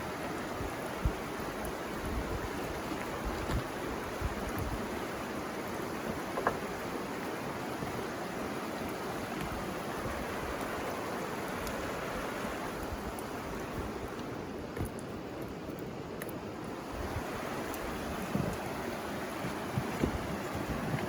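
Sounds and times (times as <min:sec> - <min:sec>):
river water flowing: 0:00.0 - 0:21.0.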